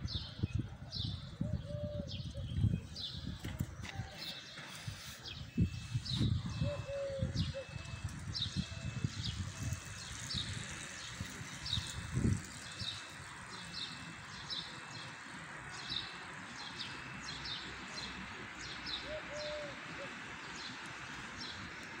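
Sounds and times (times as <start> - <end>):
city background hum: 0.0 - 22.0.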